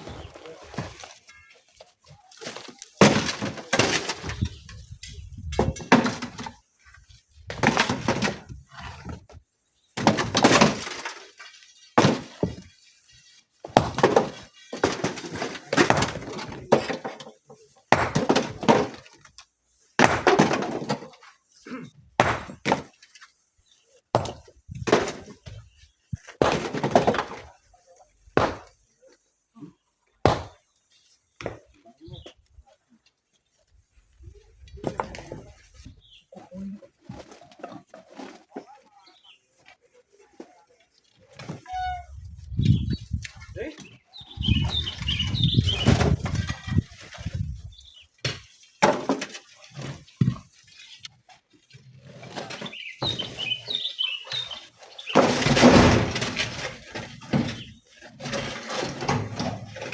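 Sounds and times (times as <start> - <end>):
rocks crashing: 44.3 - 50.5, 52.2 - 59.9.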